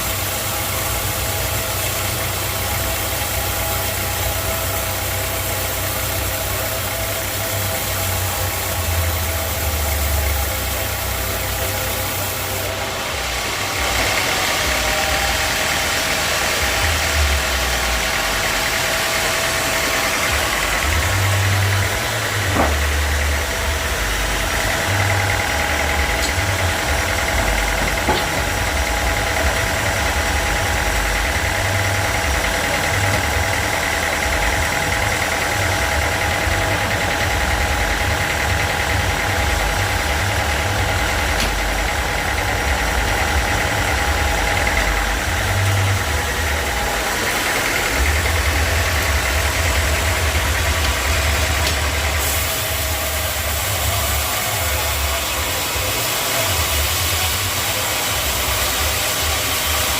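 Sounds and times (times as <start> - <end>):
sawmill machinery humming: 0.0 - 59.9.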